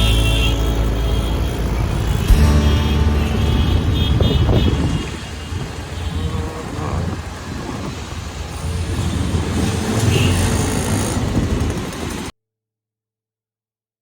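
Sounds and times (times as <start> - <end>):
vehicle engine running: 0.0 - 8.0
road traffic: 0.0 - 12.3.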